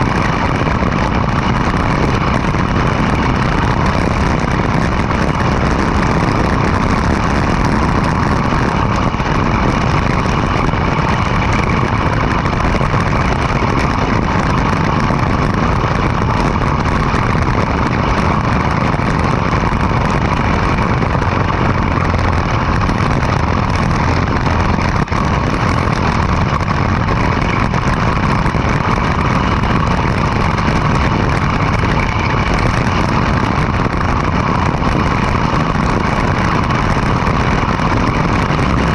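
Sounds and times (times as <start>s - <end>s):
go-kart engine running: 0.0s - 38.9s.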